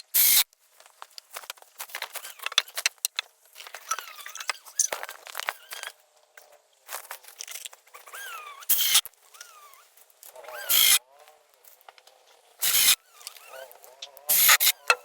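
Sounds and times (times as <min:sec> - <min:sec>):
power tool bursts: 0:10.6 - 0:11.0, 0:12.6 - 0:13.4, 0:14.3 - 0:15.0.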